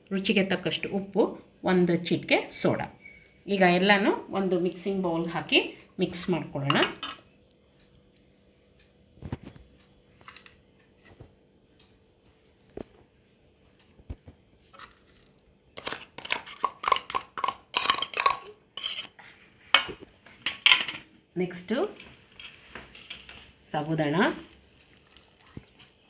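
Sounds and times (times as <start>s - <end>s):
spoon clinking and scraping bowls: 6.7s - 7.2s, 15.8s - 19.2s.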